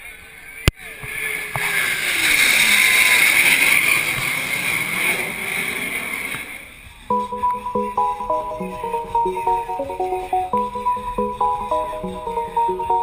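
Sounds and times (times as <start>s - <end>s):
music: 7.1s - 13.0s.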